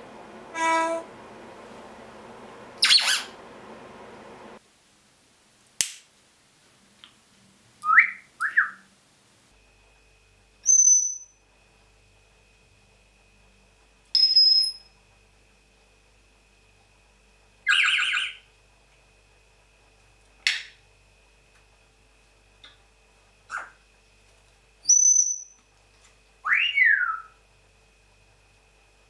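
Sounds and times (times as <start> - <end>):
parrot piercing beep-like calls: 0.6 - 1.0, 2.8 - 3.3, 10.6 - 11.4, 14.2 - 14.9, 17.7 - 18.4, 23.5 - 23.8, 24.8 - 25.6, 26.4 - 27.4
parrot squawk: 0.6 - 1.0, 2.8 - 3.4, 17.7 - 18.4, 23.5 - 23.8, 26.5 - 27.3
parrot rising whistles: 2.8 - 3.4, 24.8 - 25.6, 26.4 - 27.4.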